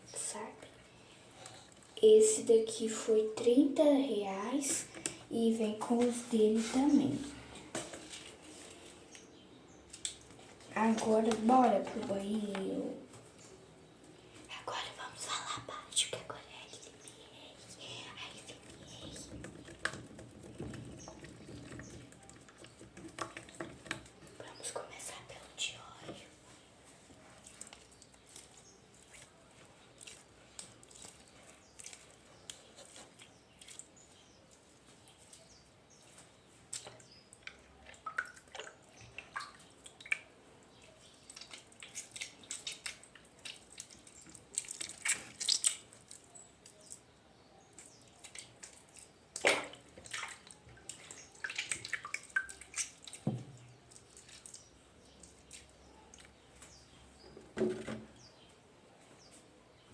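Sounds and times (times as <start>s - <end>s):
squishy toy wet squelches: 27.4s - 35.5s, 36.6s - 47.1s, 47.8s - 56.4s.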